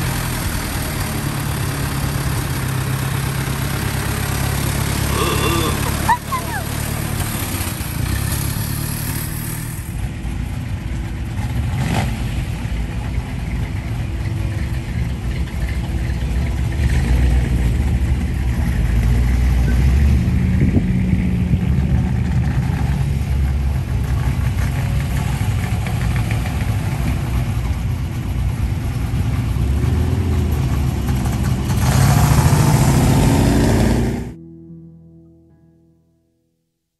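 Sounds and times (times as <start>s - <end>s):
car engines driving past: 0.0s - 34.4s
car engine accelerating: 11.2s - 34.4s.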